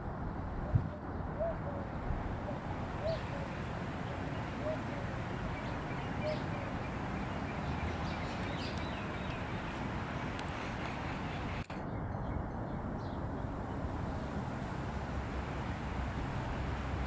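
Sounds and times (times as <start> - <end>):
outdoor background noise: 0.0 - 17.0
faint bird chirps: 0.6 - 9.8.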